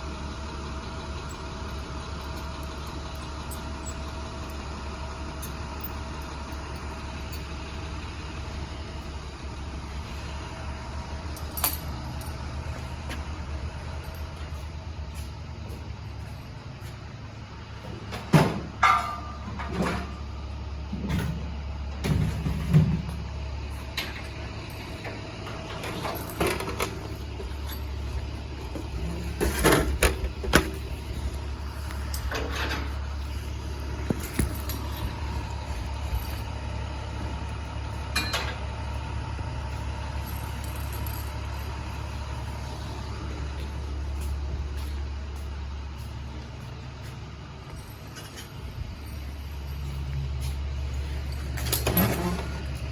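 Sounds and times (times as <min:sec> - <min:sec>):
truck engine idling: 0:00.0 - 0:52.9
knocks and clunks: 0:17.8 - 0:20.2.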